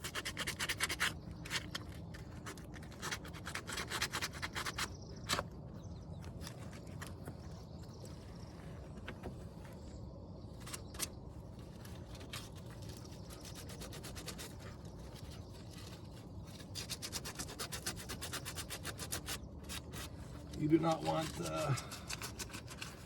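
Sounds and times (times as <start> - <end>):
sandpaper rubbing strokes: 13.2 - 23.0.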